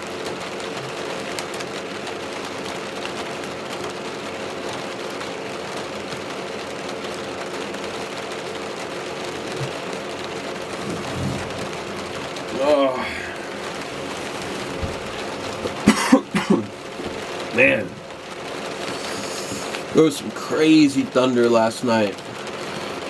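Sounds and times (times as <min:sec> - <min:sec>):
rain on camper roof: 0:00.0 - 0:23.0
fan humming: 0:10.0 - 0:20.1.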